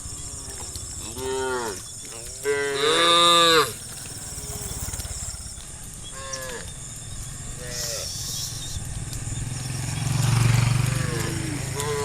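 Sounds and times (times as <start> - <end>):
cattle mooing: 0.2 - 5.3.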